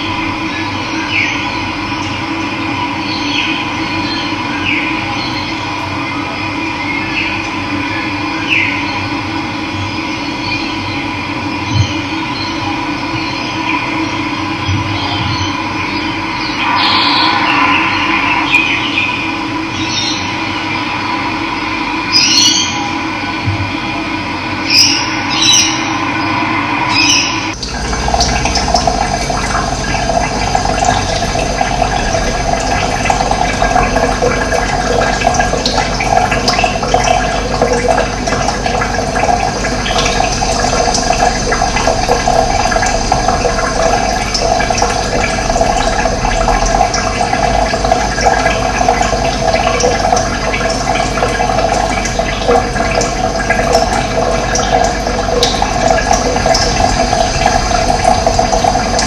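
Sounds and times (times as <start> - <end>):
running water rushing: 16.2 - 22.8, 24.7 - 59.0.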